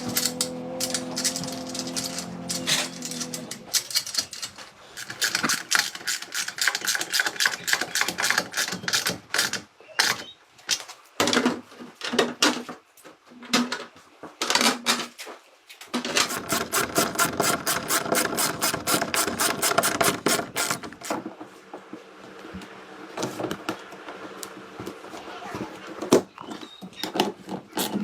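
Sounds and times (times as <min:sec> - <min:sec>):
rapid mechanical tool clicking: 0:16.1 - 0:21.2.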